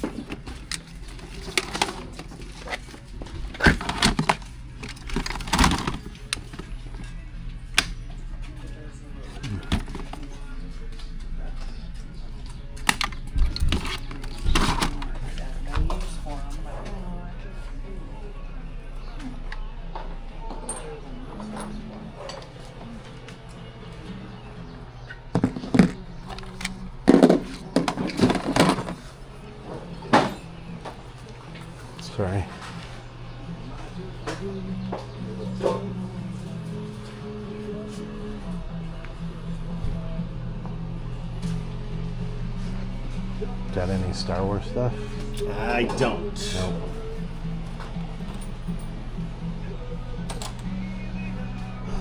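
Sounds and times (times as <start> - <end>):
knocks and clunks: 25.3 - 29.1.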